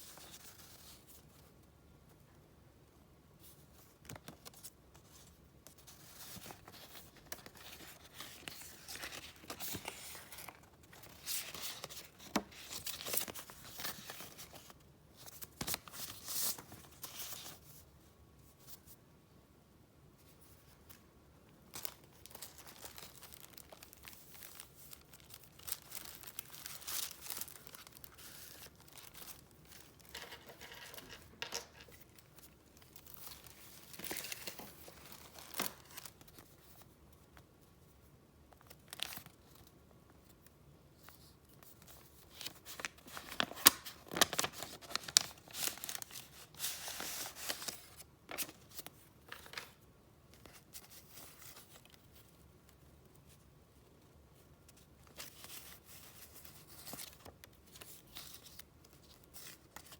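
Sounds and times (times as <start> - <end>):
paper rustling and crinkling: 3.5 - 17.8, 21.7 - 37.0, 41.1 - 49.8, 54.6 - 59.9.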